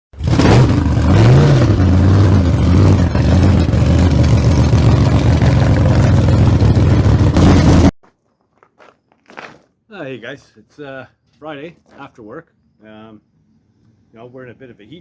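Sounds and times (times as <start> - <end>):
vehicle engine revving: 0.2 - 7.9.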